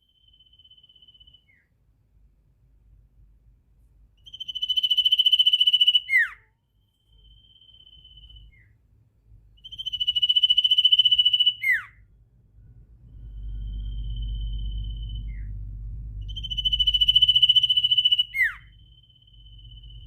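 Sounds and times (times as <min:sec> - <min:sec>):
songbird buzzing trill: 0:16.2 - 0:20.0.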